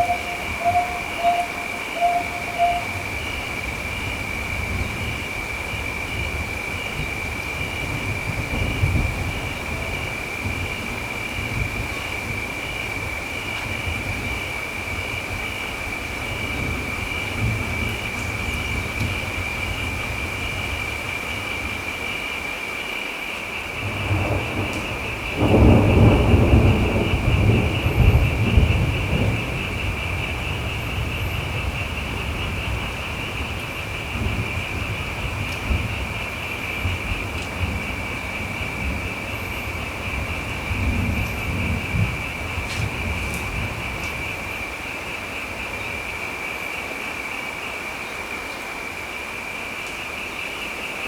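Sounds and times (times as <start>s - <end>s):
thunder rolling: 0.0s - 21.9s, 23.8s - 46.0s
steady rain: 0.0s - 51.0s.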